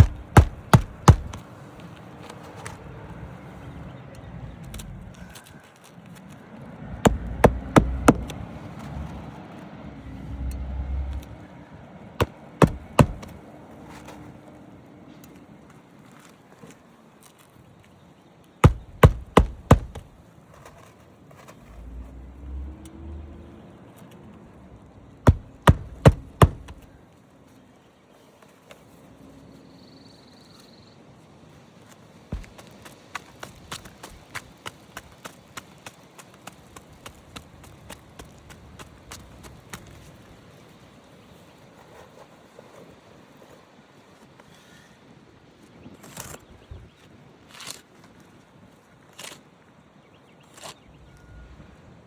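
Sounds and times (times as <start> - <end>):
sharp knocks: 0.0 - 1.4, 7.1 - 8.4, 12.2 - 13.4, 18.6 - 20.1, 25.3 - 26.8, 32.4 - 32.7.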